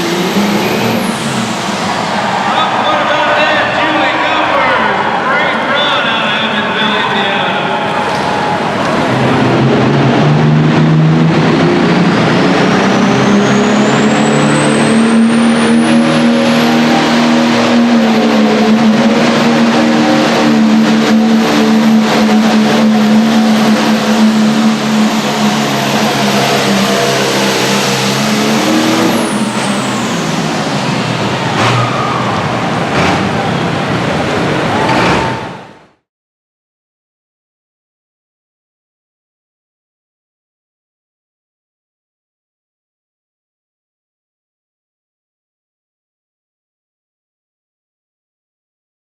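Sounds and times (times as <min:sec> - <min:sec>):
tractor diesel engine: 0:00.0 - 0:36.0
high turbo whistle: 0:12.9 - 0:30.7.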